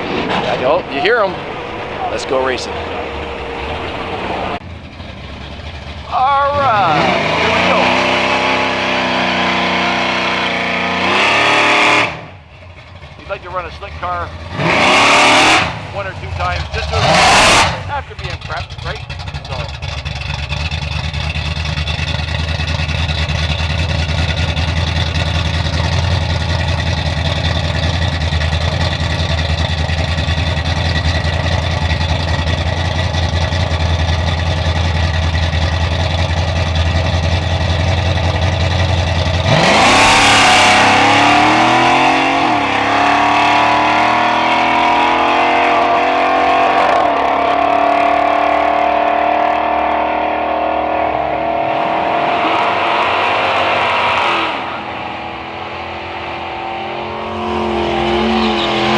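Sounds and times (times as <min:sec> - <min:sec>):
drag racing car engine: 0:00.0 - 0:58.9.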